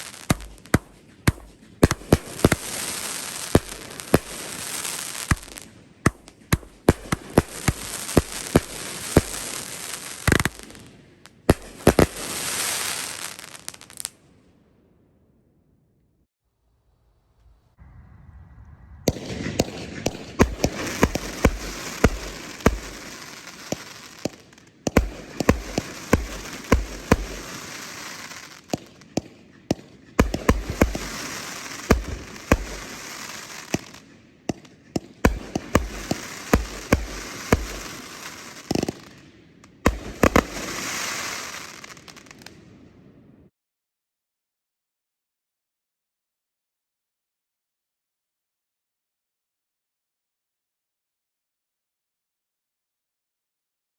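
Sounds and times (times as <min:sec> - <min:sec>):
firework crackling hiss: 0:00.0 - 0:10.9, 0:11.5 - 0:14.2, 0:18.7 - 0:29.1, 0:30.2 - 0:34.0, 0:35.2 - 0:39.2, 0:39.8 - 0:42.6
firework fuse hiss: 0:07.1 - 0:10.7, 0:11.6 - 0:14.1, 0:25.3 - 0:28.8, 0:30.5 - 0:34.0, 0:35.7 - 0:39.2, 0:40.1 - 0:42.5
firework launch reports: 0:17.6 - 0:29.2, 0:35.2 - 0:39.2.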